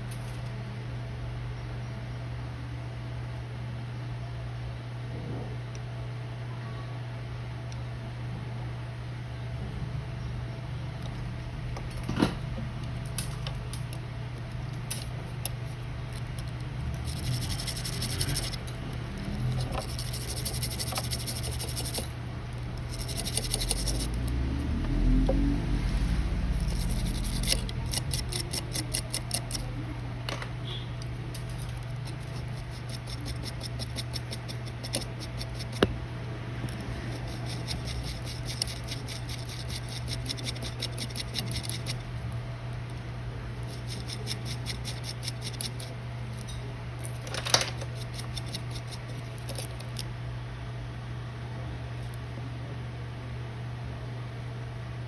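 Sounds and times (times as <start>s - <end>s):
steady low hum: 0.0s - 55.0s
hand tool scratching and clicking: 14.4s - 24.4s, 26.5s - 29.7s, 31.0s - 35.9s, 36.7s - 42.1s, 43.6s - 50.1s.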